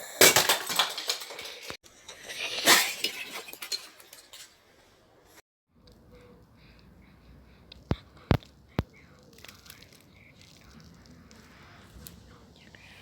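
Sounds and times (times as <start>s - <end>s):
plastic bricks clattering: 0.0s - 1.8s.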